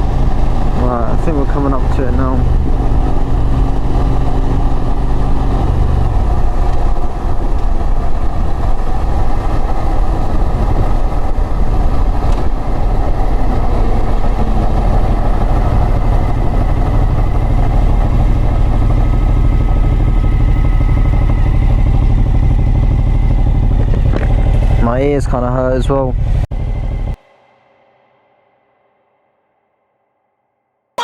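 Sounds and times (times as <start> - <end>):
wind noise rumble: 0.0 - 24.8
motorcycle engine running: 0.0 - 27.2.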